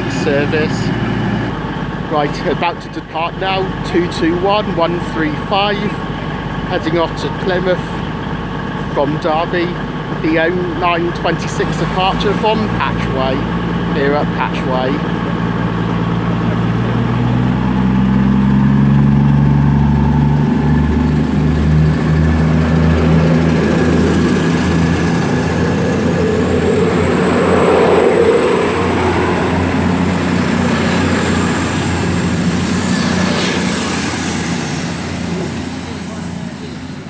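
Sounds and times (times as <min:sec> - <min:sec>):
diesel train engines revving: 0:00.0 - 0:37.0
train rolling rumble: 0:00.0 - 0:37.0
thin high whine: 0:23.1 - 0:37.0.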